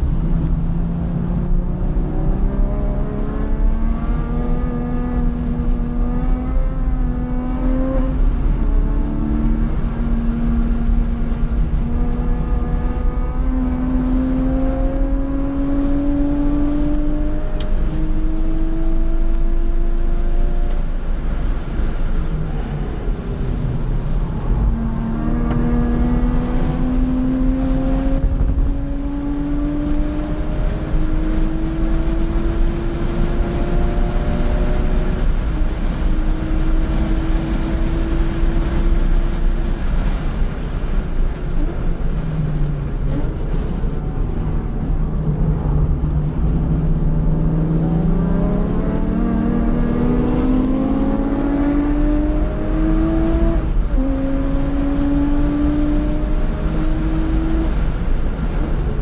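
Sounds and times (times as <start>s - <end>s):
car engine accelerating: 0.0s - 59.0s
road and wind noise: 0.0s - 59.0s.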